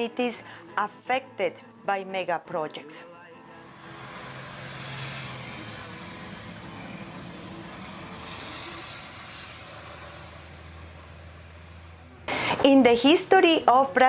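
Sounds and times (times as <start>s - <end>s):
vehicle engine hum: 3.4s - 12.9s.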